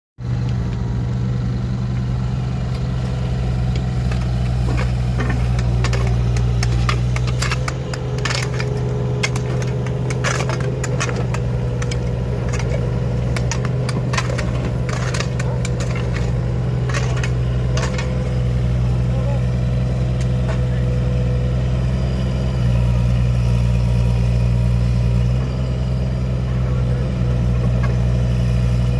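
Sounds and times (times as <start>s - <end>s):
construction machinery engine: 0.2s - 28.9s
knocks and clanks: 3.7s - 18.8s.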